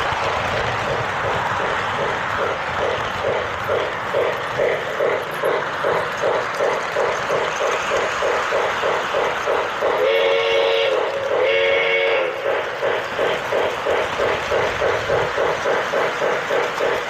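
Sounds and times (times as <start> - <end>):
model train electronic chuffing: 0.0 - 17.0
wheels rolling on track: 0.0 - 17.0
train whistle blasts: 10.0 - 12.5.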